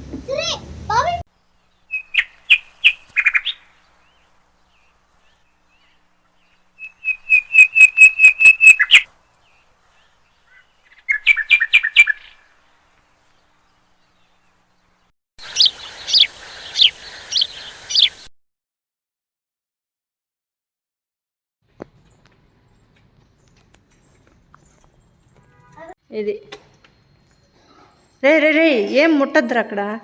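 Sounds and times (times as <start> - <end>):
bird chirping: 1.3 - 18.3.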